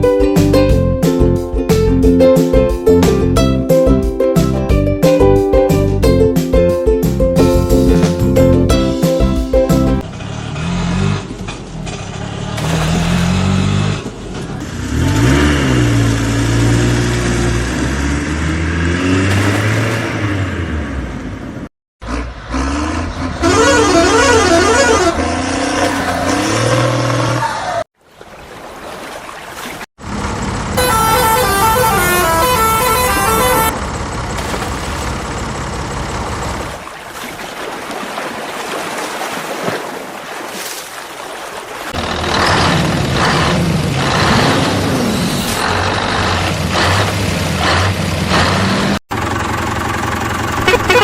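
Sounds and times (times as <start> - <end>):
toy horn toots: 23.4 - 25.3, 30.8 - 33.7, 50.6 - 51.0.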